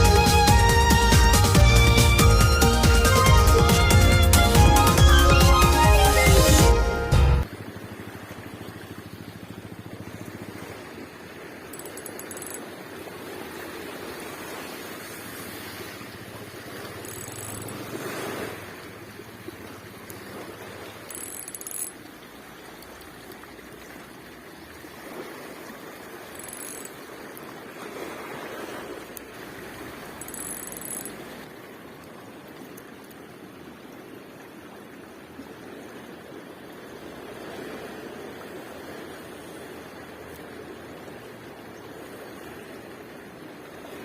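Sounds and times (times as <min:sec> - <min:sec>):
surf washing on beach: 0:07.4 - 0:44.0
high-pitched reel whirs: 0:11.6 - 0:12.7, 0:16.7 - 0:18.0, 0:20.9 - 0:22.0, 0:26.2 - 0:27.1, 0:30.1 - 0:31.2
fishing reel cranking: 0:11.7 - 0:12.7, 0:16.8 - 0:18.0, 0:21.0 - 0:22.1, 0:26.2 - 0:27.1, 0:30.1 - 0:31.2.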